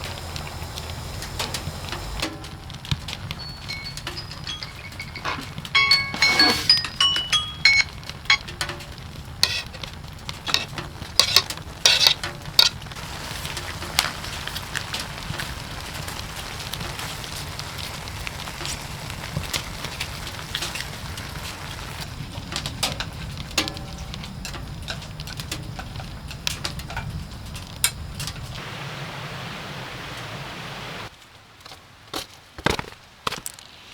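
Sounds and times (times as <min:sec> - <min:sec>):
firewood crackling and popping: 0:00.0 - 0:33.9.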